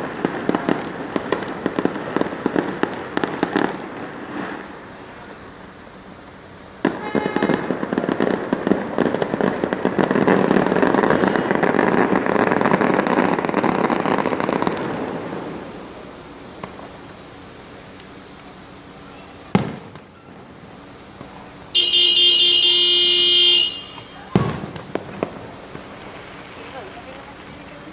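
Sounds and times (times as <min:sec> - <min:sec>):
firework bang: 0:00.0 - 0:05.3, 0:06.8 - 0:17.1, 0:19.4 - 0:20.6, 0:21.2 - 0:27.9
fireworks crackling pops: 0:00.0 - 0:27.9
steady horn tone: 0:06.9 - 0:07.9, 0:21.7 - 0:24.3.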